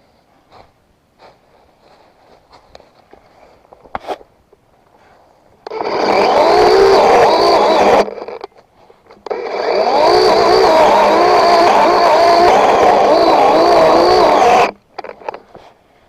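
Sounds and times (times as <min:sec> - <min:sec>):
chainsaw running at full speed: 0:05.7 - 0:08.4, 0:09.3 - 0:14.8.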